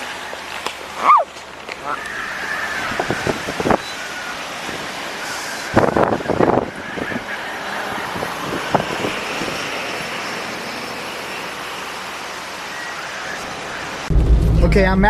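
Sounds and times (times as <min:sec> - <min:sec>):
car road noise: 0:00.0 - 0:15.0
wind rushing: 0:14.1 - 0:15.0.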